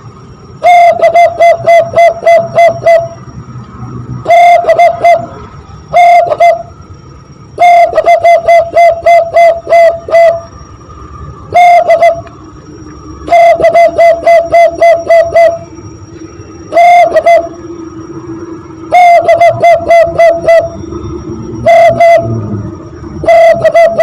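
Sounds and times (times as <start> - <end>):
hand whistle imitating dove cooing: 0.6 - 3.2, 4.2 - 6.7, 7.6 - 10.5, 11.5 - 12.4, 13.3 - 15.6, 16.7 - 17.6, 18.9 - 20.8, 21.6 - 22.4, 23.2 - 24.0.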